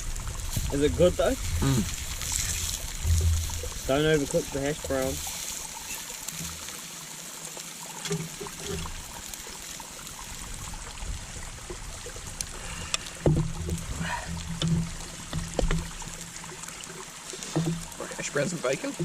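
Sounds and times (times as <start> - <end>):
food sizzling in a pan: 0.0 - 10.6.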